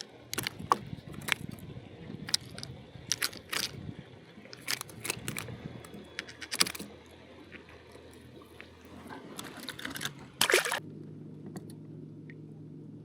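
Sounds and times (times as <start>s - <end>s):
fishing tackle clicking and rattling: 0.0s - 1.6s, 2.3s - 3.8s, 4.5s - 8.2s, 9.4s - 10.8s.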